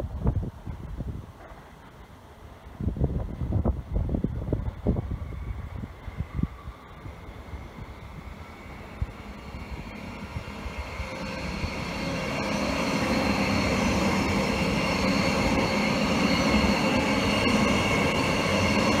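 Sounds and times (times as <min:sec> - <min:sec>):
train wheels rumbling on rails: 0:00.0 - 0:19.0
steady whining tones: 0:04.7 - 0:19.0.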